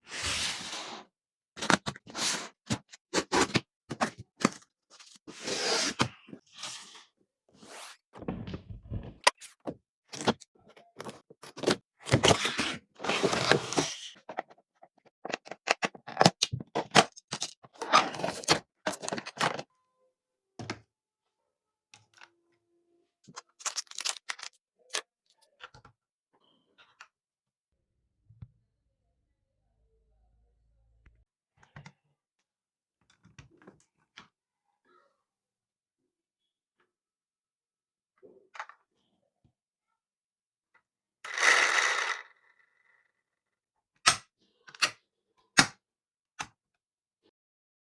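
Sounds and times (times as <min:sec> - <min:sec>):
packaging scrapes and clicks: 0:11.0 - 0:14.6, 0:15.2 - 0:19.6, 0:23.4 - 0:25.0, 0:41.3 - 0:42.3
packaging rustling: 0:23.6 - 0:24.6.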